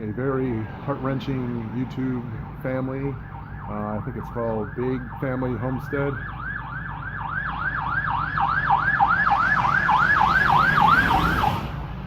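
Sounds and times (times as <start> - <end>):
siren yelping: 3.1 - 11.8.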